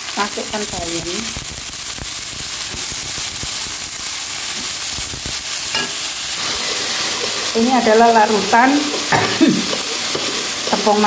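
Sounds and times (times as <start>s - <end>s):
vegetables sizzling in hot oil: 0.0s - 11.0s
spatula scraping a wok: 5.7s - 11.0s.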